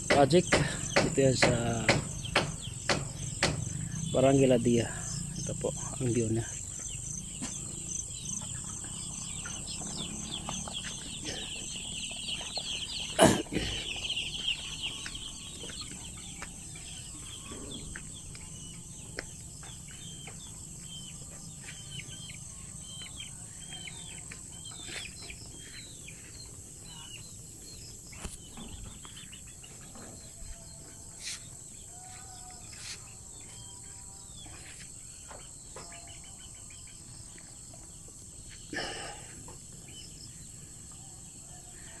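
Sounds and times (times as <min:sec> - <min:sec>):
chickens clucking: 0:00.0 - 0:33.8
sharp knock: 0:00.1 - 0:03.8.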